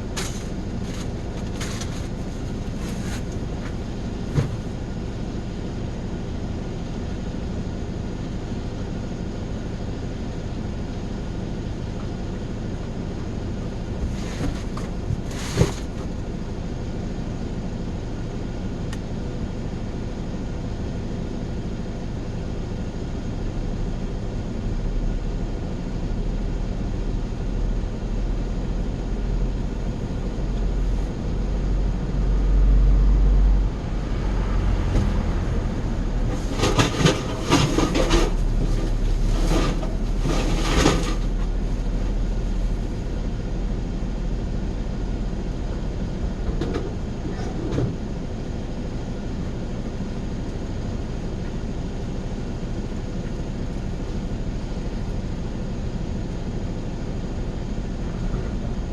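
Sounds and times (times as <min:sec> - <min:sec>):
rattles and knocks: 0:00.0 - 0:04.7, 0:14.0 - 0:16.1, 0:36.3 - 0:42.7
vehicle road noise rumble: 0:00.0 - 0:58.9.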